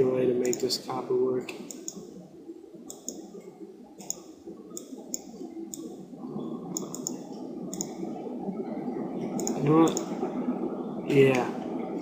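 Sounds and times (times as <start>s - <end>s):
faint low background noise: 0.0s - 12.0s
computer mouse clicking: 0.4s - 0.7s, 1.5s - 2.1s, 2.9s - 3.3s, 4.0s - 5.9s, 6.7s - 8.0s, 9.4s - 10.1s.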